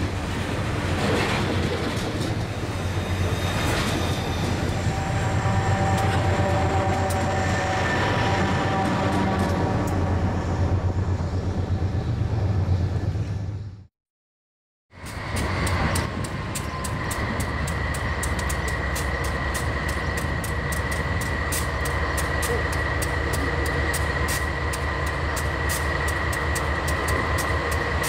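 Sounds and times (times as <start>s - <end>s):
wheels squealing on rails: 1.1s - 13.2s, 15.0s - 28.0s
locomotive engine rumbling: 15.0s - 28.0s.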